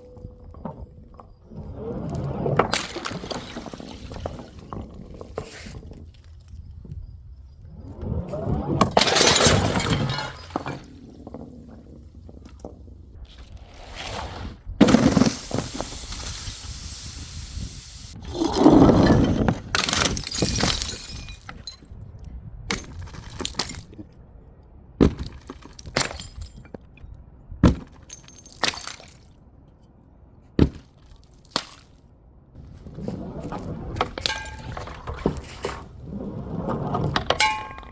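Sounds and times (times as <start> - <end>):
glass pieces clinking: 9.0 - 11.0, 19.8 - 21.9, 37.3 - 37.9
glass smashing: 9.0 - 11.0, 19.7 - 21.8, 37.3 - 37.9.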